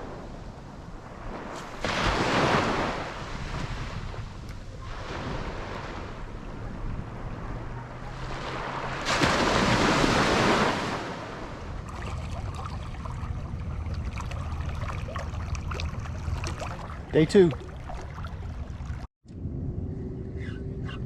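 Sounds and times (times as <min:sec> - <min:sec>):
wind on microphone: 0:00.0 - 0:09.0
water noise from boat: 0:00.0 - 0:19.1
faint low motor hum: 0:11.8 - 0:21.0
small splashes and ticks: 0:11.9 - 0:19.1.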